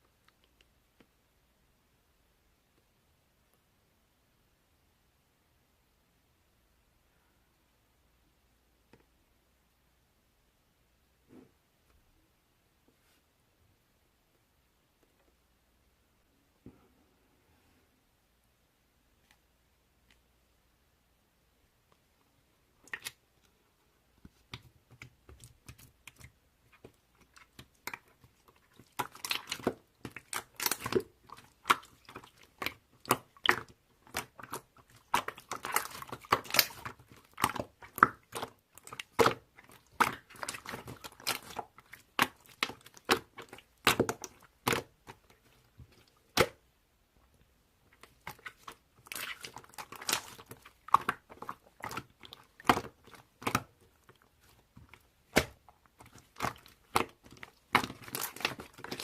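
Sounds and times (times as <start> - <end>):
crackling and crunching: 24.3 - 46.6, 47.9 - 59.0.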